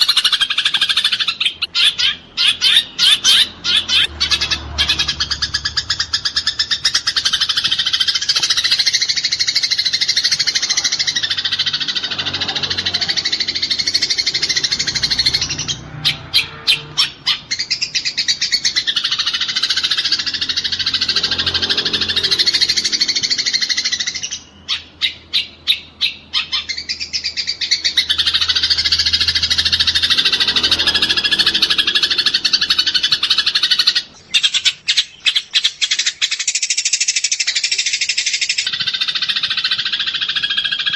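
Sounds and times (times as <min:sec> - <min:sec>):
spaced sparrow chirps: 0:00.0 - 0:40.9
sparrows chattering rapidly: 0:00.0 - 0:40.9.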